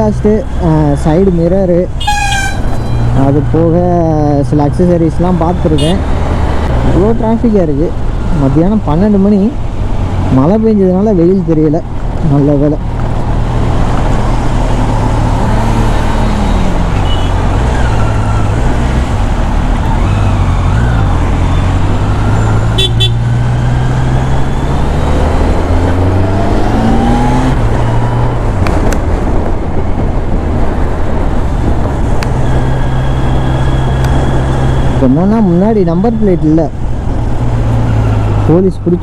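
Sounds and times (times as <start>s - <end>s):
road traffic: 0.0s - 39.0s
horn toot: 2.0s - 3.2s, 5.7s - 6.0s, 22.7s - 23.3s.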